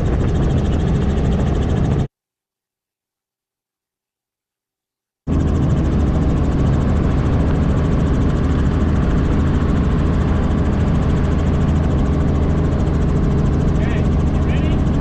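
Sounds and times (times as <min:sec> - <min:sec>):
helicopter rotor and engine drone: 0:00.0 - 0:02.1, 0:05.3 - 0:15.0.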